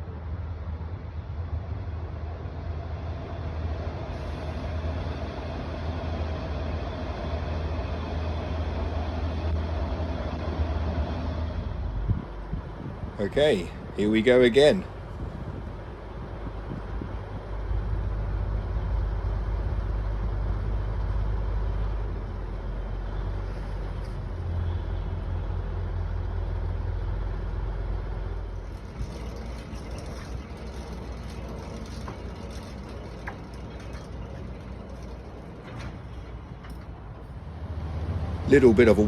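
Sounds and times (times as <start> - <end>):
crane diesel engine running: 0.0 - 39.0
clicks and rattles: 28.5 - 37.4.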